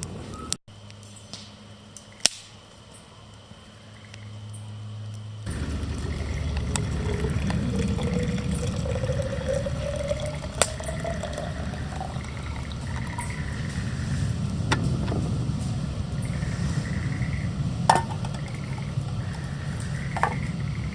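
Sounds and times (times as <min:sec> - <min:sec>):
steady low rush: 0:04.8 - 0:20.9
water running into a container: 0:05.5 - 0:20.9.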